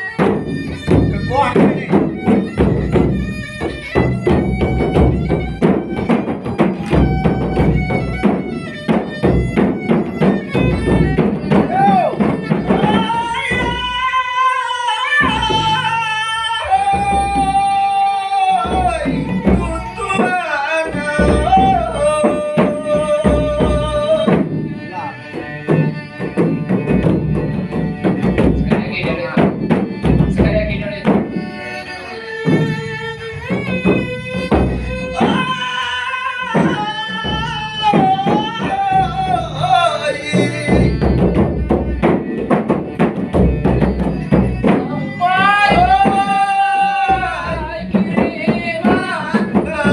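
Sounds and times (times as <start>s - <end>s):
hand drum: 0.0s - 49.9s
person singing ornamented notes: 44.6s - 49.9s.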